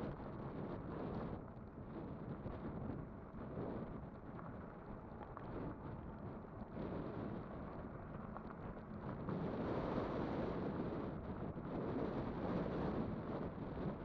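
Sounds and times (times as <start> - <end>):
rough road rumble: 0.0 - 14.0
wind buffeting microphone: 8.4 - 14.0.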